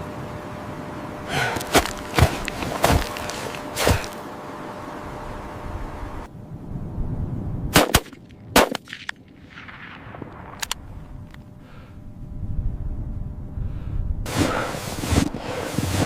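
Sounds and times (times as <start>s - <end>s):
steady low rumble: 0.0s - 16.0s
sharp cracks or knocks: 1.4s - 4.2s, 7.8s - 11.4s.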